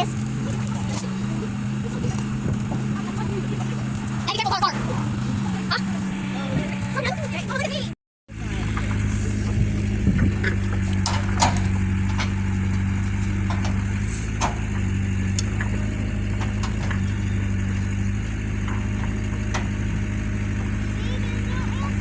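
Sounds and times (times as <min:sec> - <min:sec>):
engine idling: 0:00.0 - 0:22.0
sharp clicks and knocks: 0:09.6 - 0:20.1.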